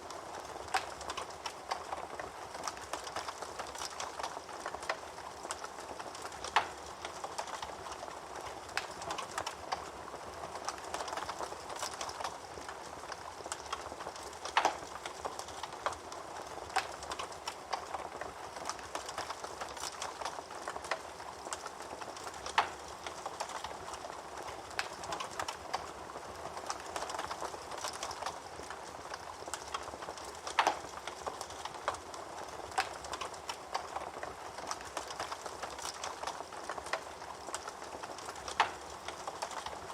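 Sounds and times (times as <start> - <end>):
wood fire crackling: 0.0 - 39.9
fire pops: 10.6 - 25.9, 26.6 - 39.8.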